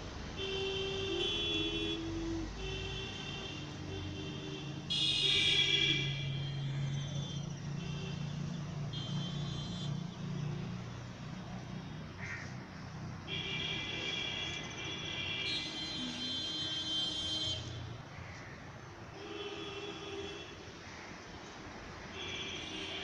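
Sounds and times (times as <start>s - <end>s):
traffic rumble: 0.0s - 23.0s
high-pitched horn blasts: 15.4s - 17.8s.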